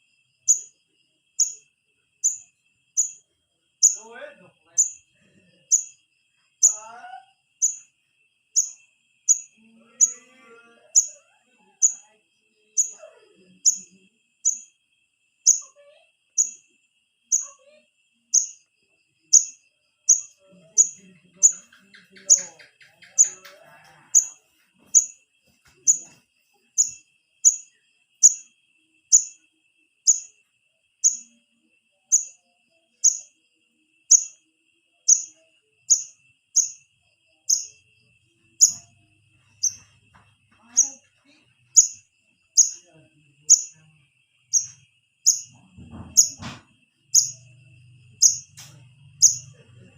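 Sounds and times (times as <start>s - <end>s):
juvenile bird chirping: 0.5s - 0.8s, 1.4s - 1.6s, 2.2s - 3.2s, 3.8s - 6.0s, 6.6s - 7.0s, 7.6s - 7.9s, 8.6s - 11.2s, 11.8s - 12.1s, 12.8s - 14.7s, 15.5s - 15.7s, 16.4s - 16.6s, 18.4s - 18.6s, 19.3s - 26.2s, 26.8s - 28.5s, 29.1s - 29.4s, 30.1s - 30.3s, 31.0s - 31.3s, 32.1s - 32.4s, 33.0s - 33.4s, 34.1s - 34.4s, 35.1s - 36.8s, 37.4s - 37.9s, 38.6s - 38.9s, 39.5s - 40.0s, 40.6s - 41.1s, 41.7s - 43.8s, 44.5s - 47.6s, 48.2s - 49.6s.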